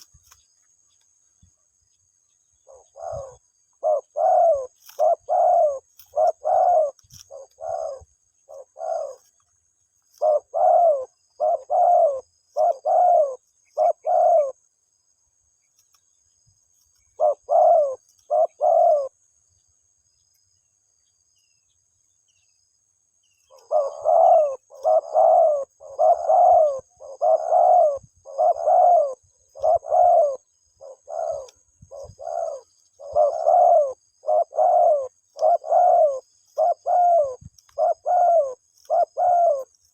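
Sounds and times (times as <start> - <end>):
dove cooing: 2.6 - 9.4, 10.1 - 14.6, 17.1 - 19.2, 23.5 - 39.8.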